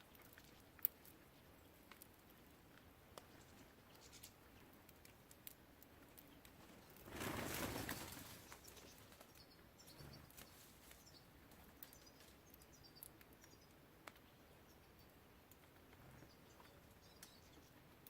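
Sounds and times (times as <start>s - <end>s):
bird wings flapping: 6.6s - 9.3s.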